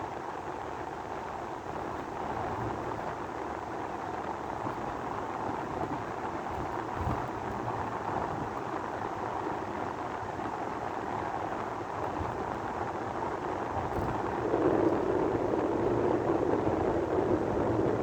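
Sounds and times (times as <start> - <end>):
sandstorm wind rushing: 11.3 - 18.0.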